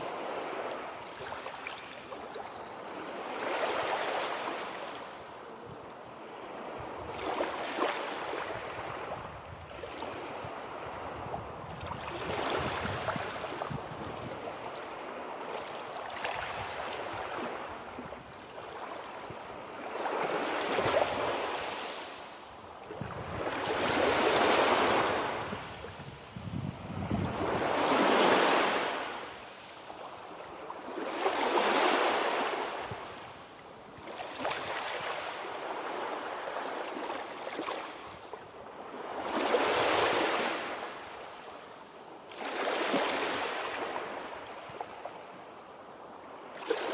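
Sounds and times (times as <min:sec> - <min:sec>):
sea waves breaking on shore: 0:00.0 - 0:46.9
wind on microphone: 0:05.5 - 0:15.2, 0:22.8 - 0:29.2.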